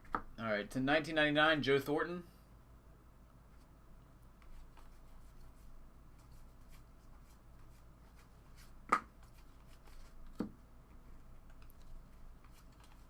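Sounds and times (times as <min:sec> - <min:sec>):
cards clicking and rustling: 0:11.4 - 0:13.0.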